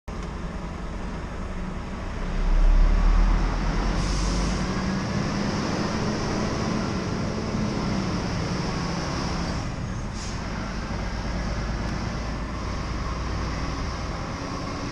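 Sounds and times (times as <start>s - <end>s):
road noise: 0.0s - 14.9s
truck engine drone: 0.1s - 14.9s.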